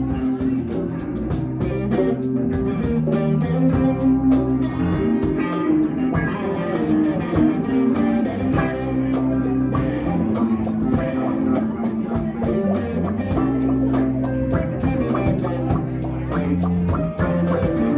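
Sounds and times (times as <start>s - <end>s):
bass guitar: 0.0s - 17.9s
electric guitar: 0.0s - 17.9s
quick drum beat: 9.7s - 11.4s, 12.1s - 17.9s.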